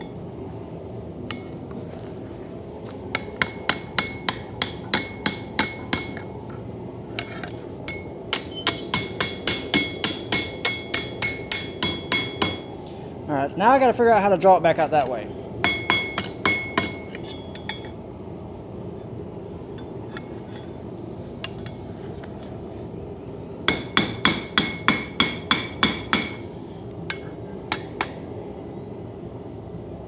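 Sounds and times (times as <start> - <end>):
hammer striking steel on anvil: 3.1 - 6.3, 7.2 - 12.9, 15.0 - 18.0, 21.4 - 21.9, 23.7 - 28.4.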